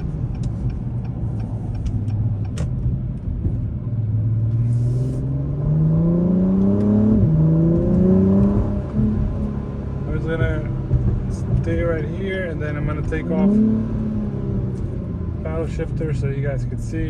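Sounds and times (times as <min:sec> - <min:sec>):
car engine revving from inside cabin: 0:04.0 - 0:12.0, 0:12.7 - 0:15.5.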